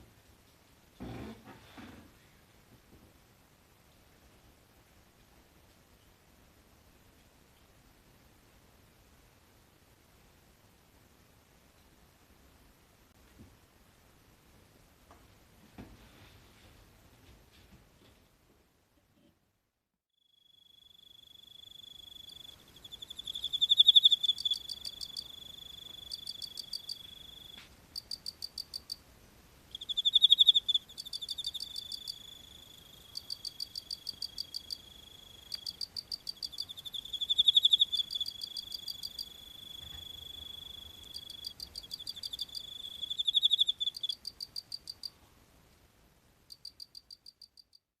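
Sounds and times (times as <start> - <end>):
crickets pulsed chirps: 20.2 - 29.0, 29.7 - 45.2, 46.5 - 47.8
cricket high trill: 20.3 - 29.0, 29.8 - 45.1.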